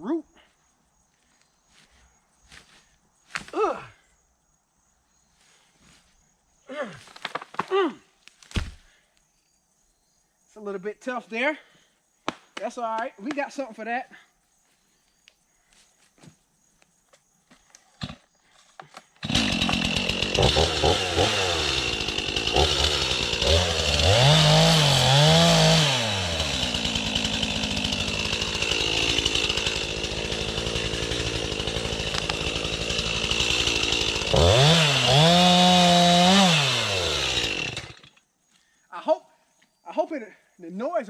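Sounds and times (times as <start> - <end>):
chainsaw revving: 19.2 - 38.2.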